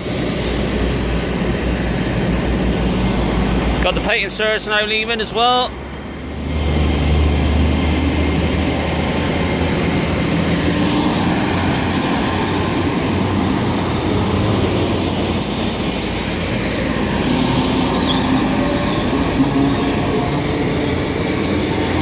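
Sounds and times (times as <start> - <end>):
high whine: 0.0 - 22.0
train running gear and engine: 0.0 - 22.0.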